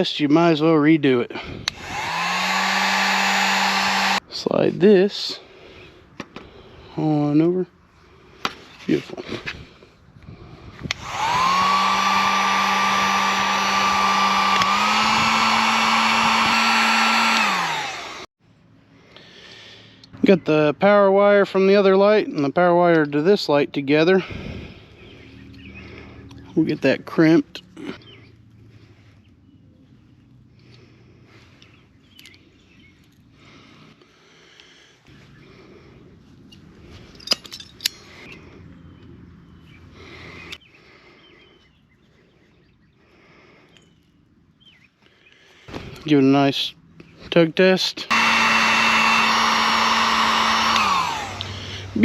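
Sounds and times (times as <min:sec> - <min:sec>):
heat gun fan whining: 0:01.3 - 0:04.6, 0:10.2 - 0:18.3, 0:47.3 - 0:52.0.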